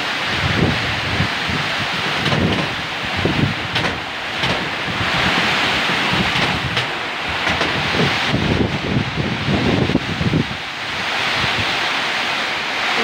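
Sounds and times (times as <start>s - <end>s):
wind buffeting microphone: 0.2s - 11.9s.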